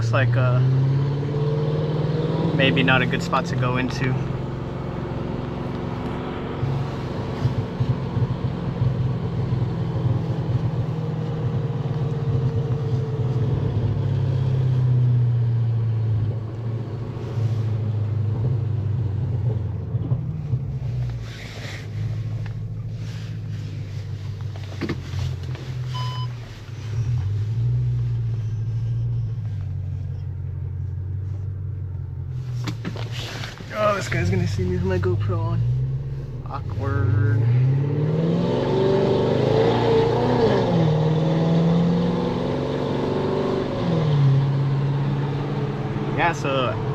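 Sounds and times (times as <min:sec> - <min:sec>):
car engine and exhaust droning: 0:00.0 - 0:46.9
short high beep: 0:25.9 - 0:26.4.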